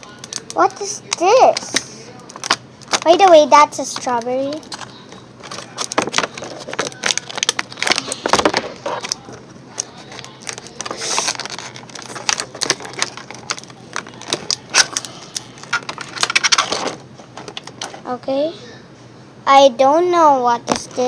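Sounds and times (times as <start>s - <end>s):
packaging rustling: 0.0s - 17.8s
plastic toys clicking and tapping: 0.0s - 18.0s.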